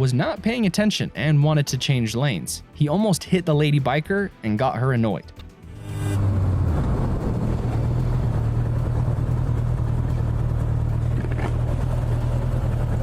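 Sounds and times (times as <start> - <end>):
road and wind noise: 5.4 - 13.0
motorcycle engine running: 5.7 - 13.0.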